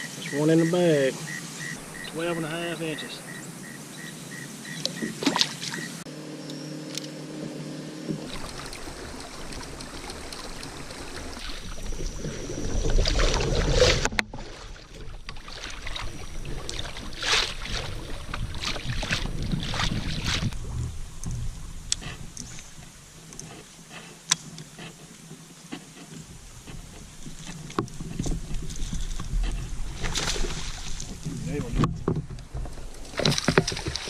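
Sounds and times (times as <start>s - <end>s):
water lapping and splashing: 0.0s - 6.1s, 8.1s - 34.0s
wind rumble on microphone: 8.1s - 23.4s, 26.2s - 34.0s.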